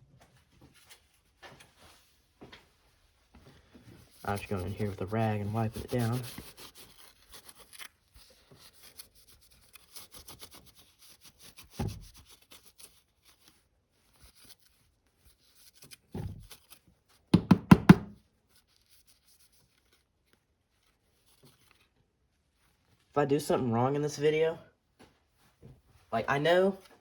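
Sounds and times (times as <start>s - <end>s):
thumps: 17.4s - 18.2s.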